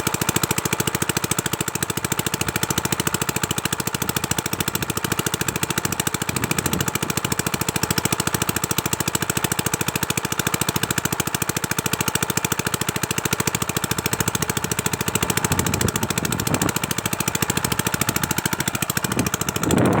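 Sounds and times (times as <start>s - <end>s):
small diesel engine knocking: 0.0s - 20.0s.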